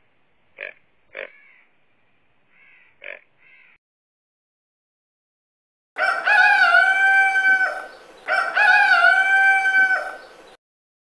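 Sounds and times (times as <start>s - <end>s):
rooster crowing: 6.0s - 10.4s.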